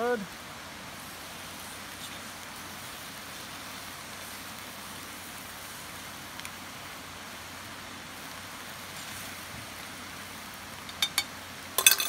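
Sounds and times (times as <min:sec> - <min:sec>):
food sizzling in a pot: 0:00.0 - 0:12.0
spoon clinking against pot: 0:10.9 - 0:12.0.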